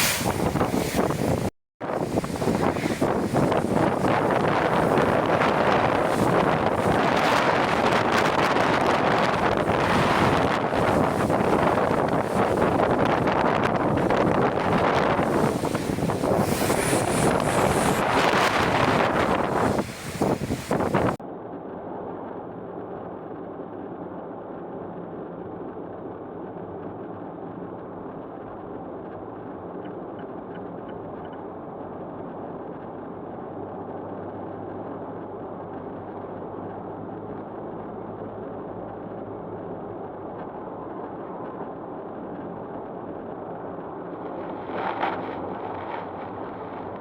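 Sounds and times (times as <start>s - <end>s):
road noise: 0.0s - 21.2s, 21.9s - 47.0s
wind buffeting microphone: 0.0s - 21.2s, 32.8s - 47.0s
muffled car engine hum: 2.0s - 47.0s.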